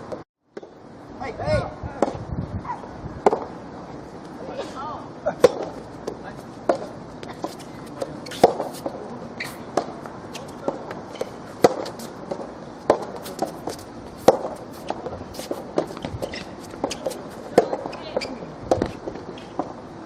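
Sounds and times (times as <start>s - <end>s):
rackets hitting tennis ball: 5.3s - 19.8s
ball bouncing: 5.4s - 19.7s
footsteps on court: 5.4s - 19.8s.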